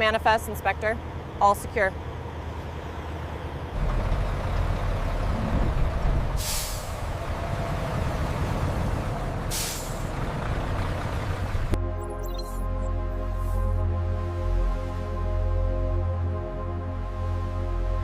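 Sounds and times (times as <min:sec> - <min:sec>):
heavy truck engine rumbling: 0:00.0 - 0:11.8
air brakes hissing: 0:06.4 - 0:07.2, 0:09.5 - 0:10.1.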